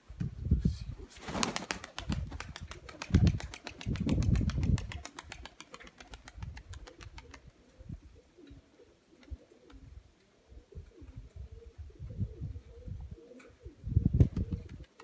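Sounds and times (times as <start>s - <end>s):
pigeon wings beating: 1.1s - 7.5s
pigeons cooing: 7.1s - 14.8s.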